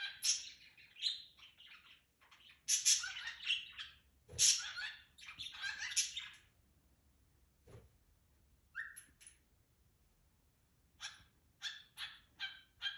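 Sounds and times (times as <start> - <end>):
cockatiel chirping and whistling: 8.7 - 9.1.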